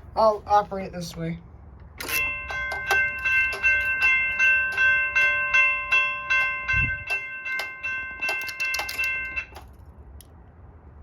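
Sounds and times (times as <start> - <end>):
railroad crossing bell ringing: 2.0 - 9.8.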